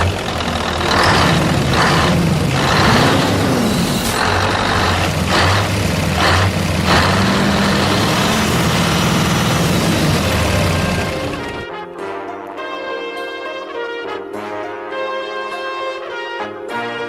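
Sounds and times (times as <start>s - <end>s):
truck engine running: 0.0s - 11.7s.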